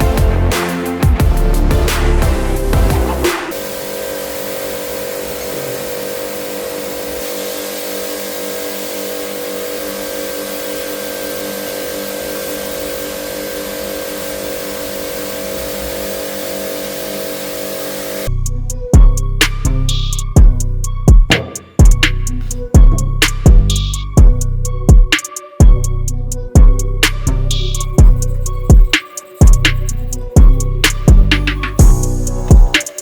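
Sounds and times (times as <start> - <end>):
tool humming and hissing: 2.6 - 18.3, 31.3 - 33.0.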